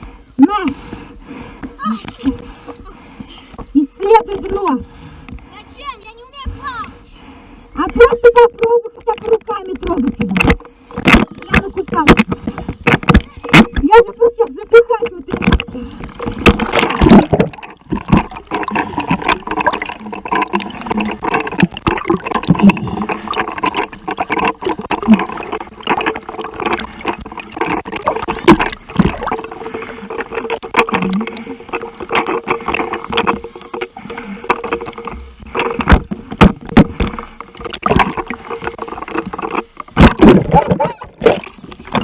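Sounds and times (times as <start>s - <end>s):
water splashing and sloshing: 0.0s - 42.0s
steady hum: 10.0s - 42.0s.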